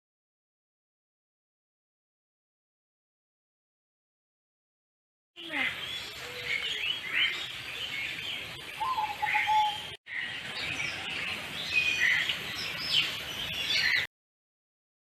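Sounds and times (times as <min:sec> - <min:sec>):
birds chirping: 0:05.4 - 0:14.1.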